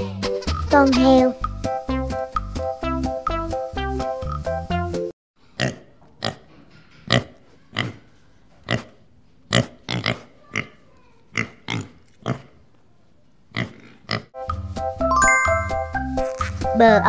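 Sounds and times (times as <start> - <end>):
pigs grunting: 5.6 - 12.6, 13.5 - 14.4.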